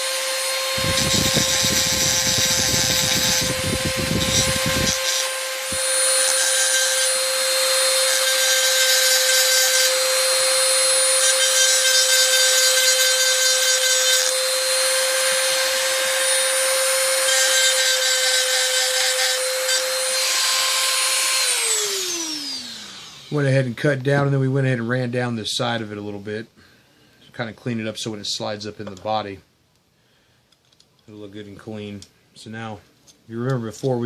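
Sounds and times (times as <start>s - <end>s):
rotary tool whining: 0.0s - 23.4s
bit grinding into metal: 0.8s - 7.2s.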